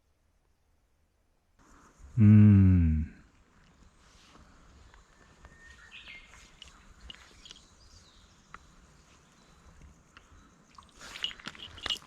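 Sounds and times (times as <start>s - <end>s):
faint bird chirps: 3.0s - 12.0s.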